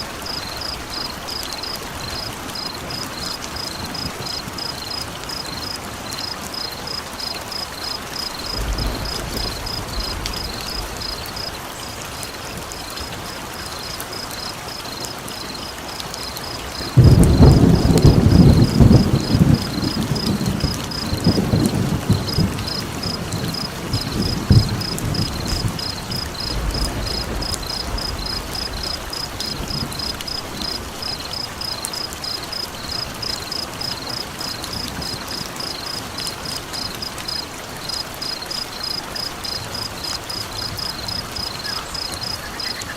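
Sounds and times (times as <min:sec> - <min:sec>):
campfire crackling: 0:00.0 - 0:42.9
thunder rumbling: 0:08.2 - 0:13.2, 0:16.8 - 0:34.1.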